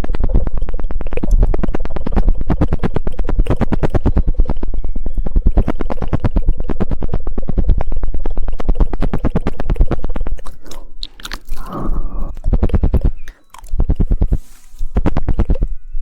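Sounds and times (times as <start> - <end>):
wet mouth smacking: 0.0 - 4.6, 7.8 - 15.7
rapid tongue clicking: 0.0 - 15.8.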